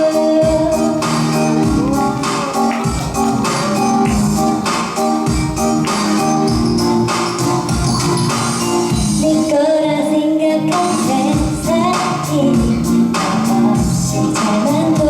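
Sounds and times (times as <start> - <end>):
woman singing: 0.0 - 2.7, 9.1 - 15.0
pop backing track: 0.0 - 15.0.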